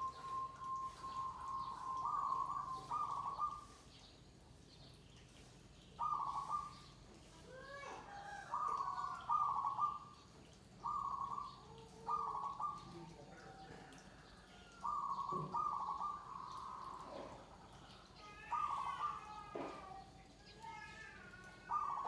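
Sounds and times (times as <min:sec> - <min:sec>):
doves cooing: 0:00.0 - 0:03.8, 0:06.0 - 0:06.8, 0:08.1 - 0:10.2, 0:10.8 - 0:20.3, 0:21.5 - 0:22.0.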